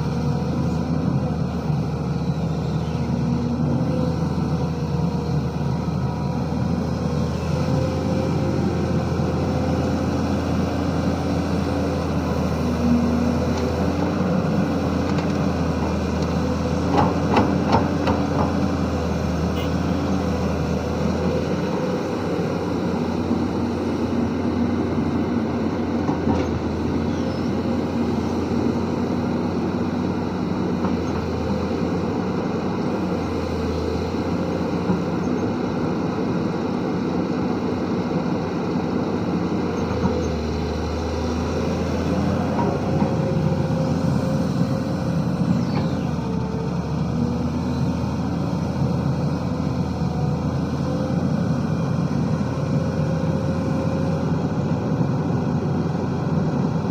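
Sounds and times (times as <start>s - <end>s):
excavator diesel engine running: 0.0s - 56.9s.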